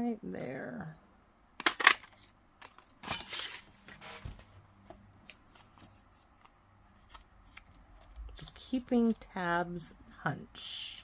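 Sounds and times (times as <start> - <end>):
paper rustling: 5.2 - 9.3.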